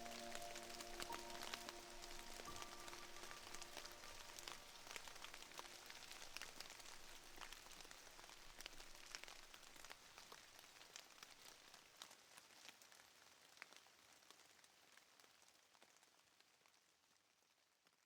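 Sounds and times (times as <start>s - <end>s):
sustained music notes: 0.0s - 5.0s
faint hiss: 0.0s - 10.6s
soft rain pattering: 0.0s - 18.0s.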